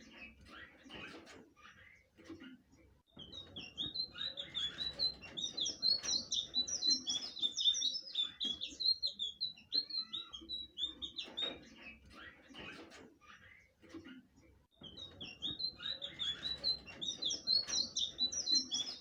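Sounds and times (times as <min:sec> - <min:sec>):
flycatcher singing: 0:03.4 - 0:11.4, 0:15.2 - 0:19.0.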